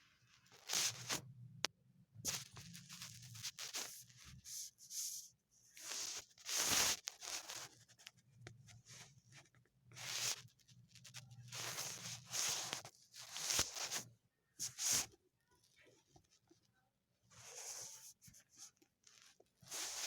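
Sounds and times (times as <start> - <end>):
kittens scuffling and scratching: 0.5 - 1.2, 5.8 - 15.1, 17.3 - 20.0.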